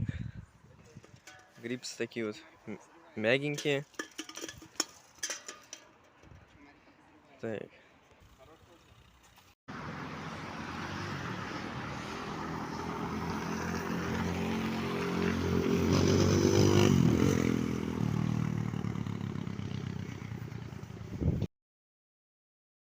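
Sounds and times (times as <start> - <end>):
dirt bike engine revving: 10.0 - 19.9.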